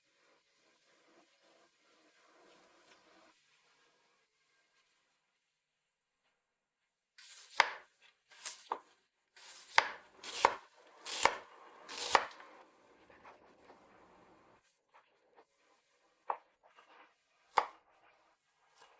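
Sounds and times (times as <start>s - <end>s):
knife chopping on cutting board: 7.2s - 13.8s, 16.2s - 16.6s, 17.4s - 18.0s
knife slicing sound: 7.2s - 14.2s, 16.2s - 18.9s.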